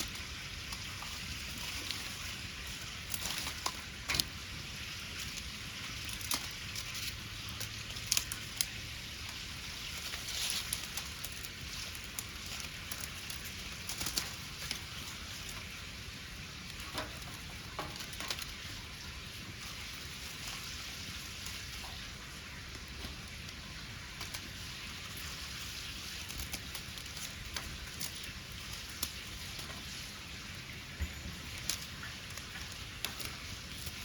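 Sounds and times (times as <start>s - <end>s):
wood fire crackling: 0.0s - 34.0s.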